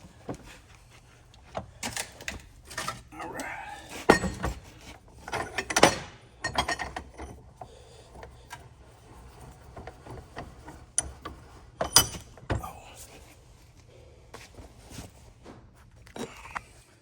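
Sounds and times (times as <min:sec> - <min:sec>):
metal tools clanking and tapping: 0:04.0 - 0:07.7, 0:09.7 - 0:12.6.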